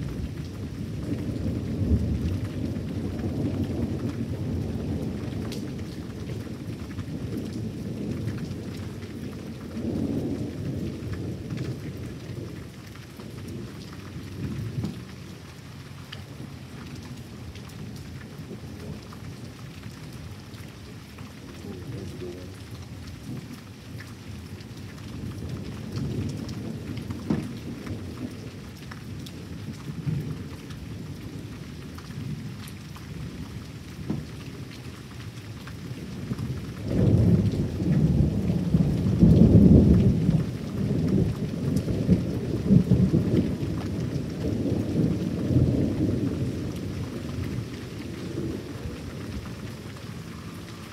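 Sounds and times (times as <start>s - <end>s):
steady rain falling: 0.0s - 50.9s
thunder rumbling: 16.2s - 32.6s, 35.9s - 50.9s.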